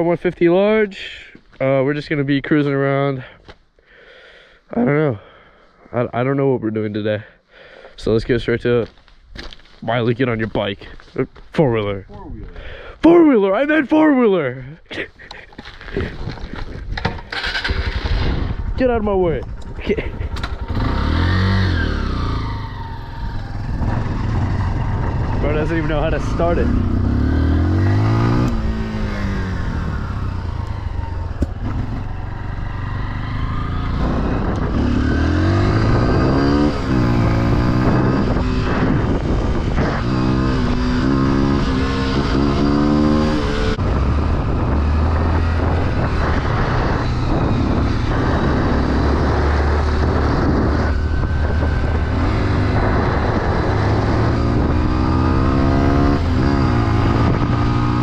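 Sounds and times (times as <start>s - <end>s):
off-road vehicle engine revving: 20.4s - 58.0s.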